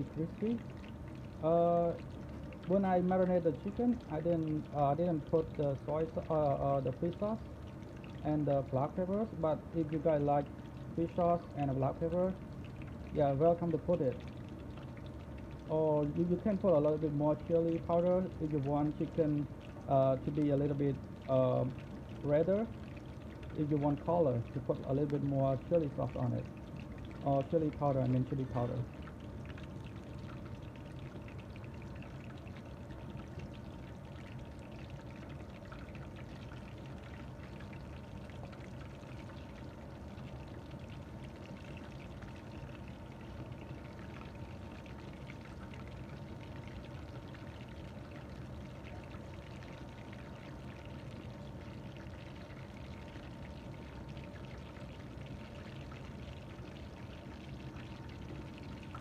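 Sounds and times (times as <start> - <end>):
chicken deep-frying in oil: 0.0 - 59.0.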